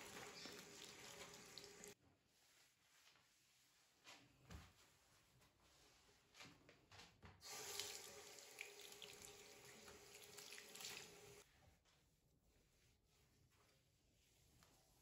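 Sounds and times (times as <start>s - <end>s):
tap water running into sink: 0.0s - 2.0s, 7.4s - 11.4s.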